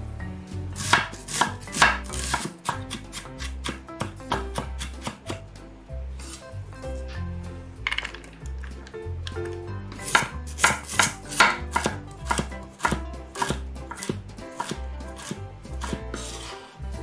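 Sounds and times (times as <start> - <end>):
background music with bass line: 0.0 - 17.0
knife chopping on cutting board: 0.8 - 5.5, 9.9 - 16.7.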